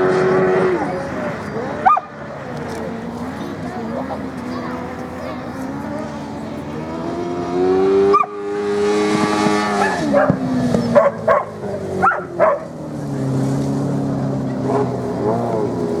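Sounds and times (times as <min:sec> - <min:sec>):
motorcycle engines running: 0:00.0 - 0:16.0
sharp yelping calls: 0:01.8 - 0:02.2.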